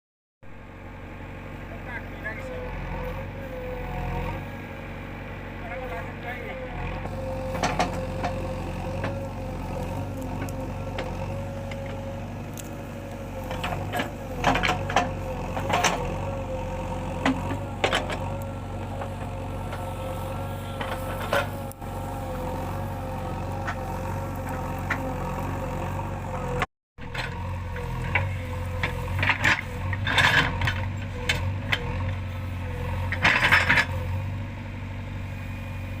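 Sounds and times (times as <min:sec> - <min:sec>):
earthmover diesel engine running: 0:00.4 - 0:36.0
steady whine: 0:00.5 - 0:31.0
clanks and knocks: 0:07.0 - 0:09.3, 0:13.4 - 0:16.2, 0:17.1 - 0:19.8, 0:33.0 - 0:34.0.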